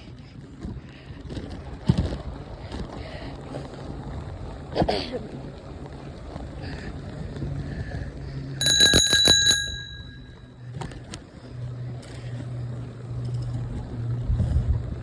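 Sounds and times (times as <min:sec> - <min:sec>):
bicycle bell ringing: 0:08.6 - 0:10.7.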